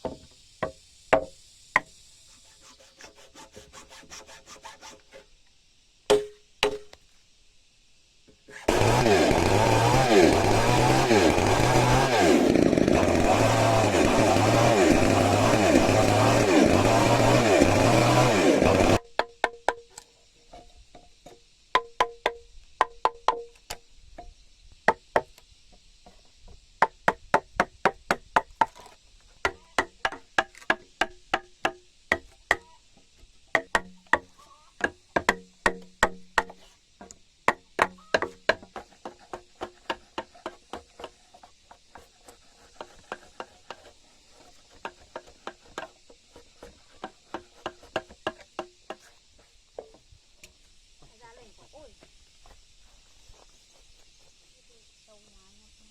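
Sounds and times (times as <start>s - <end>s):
sharp knocks on timber: 0.0s - 1.9s, 6.1s - 6.9s, 33.6s - 41.2s
chainsaw running under load: 8.7s - 19.0s.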